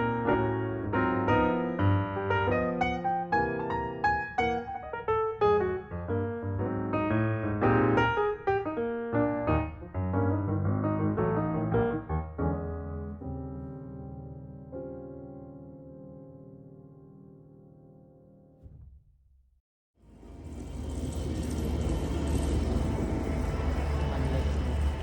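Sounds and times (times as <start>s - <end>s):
calm piano music: 0.0s - 18.6s.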